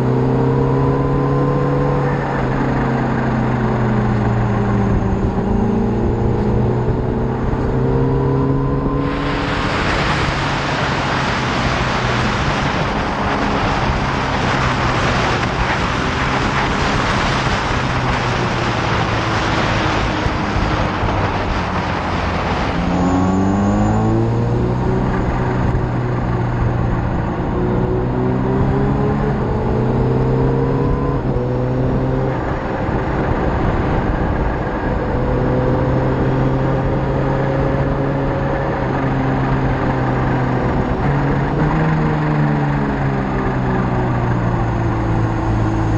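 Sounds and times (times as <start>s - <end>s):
heavy wind noise: 0.0s - 45.9s
motorcycle engine accelerating: 0.0s - 45.9s.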